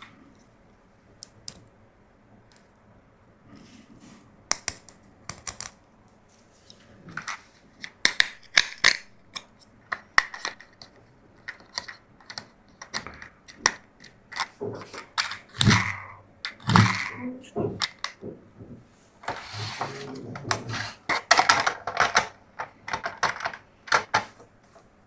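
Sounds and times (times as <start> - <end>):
plastic toys clicking: 7.2 - 18.2, 20.1 - 24.4.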